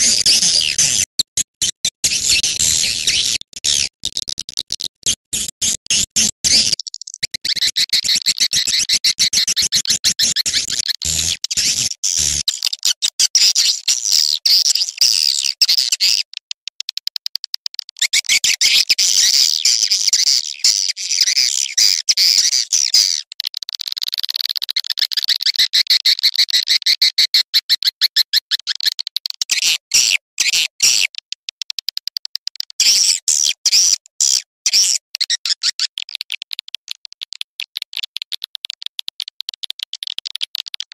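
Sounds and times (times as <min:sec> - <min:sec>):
swiftlets chirping and twittering: 0:00.0 - 0:03.9, 0:05.9 - 0:16.3, 0:17.9 - 0:23.2.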